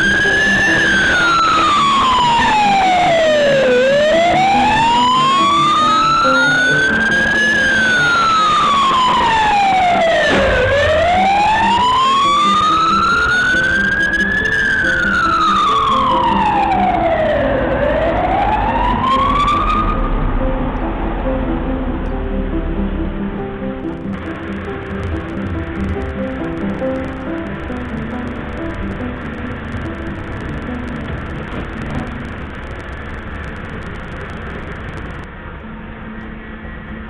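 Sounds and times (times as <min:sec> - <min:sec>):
emergency siren wailing: 0:00.0 - 0:21.2, 0:23.8 - 0:35.3
background music: 0:00.0 - 0:37.0.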